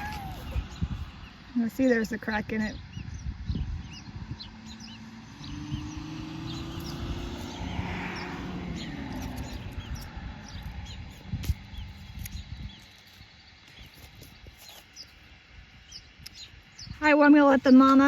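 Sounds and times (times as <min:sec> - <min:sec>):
low rumble: 0:00.0 - 0:13.6
small birds chirping: 0:00.0 - 0:18.0.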